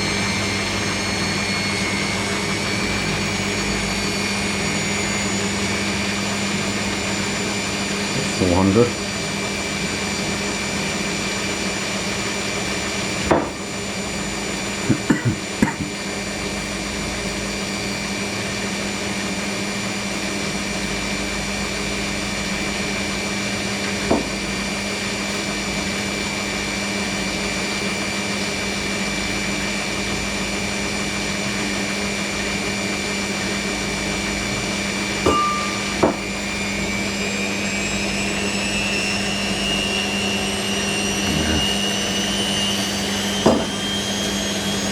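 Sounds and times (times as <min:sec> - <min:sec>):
washing machine spinning: 0:00.0 - 0:44.9
sharp knocks: 0:13.3 - 0:13.7, 0:24.0 - 0:24.4, 0:35.3 - 0:36.3, 0:43.4 - 0:43.7.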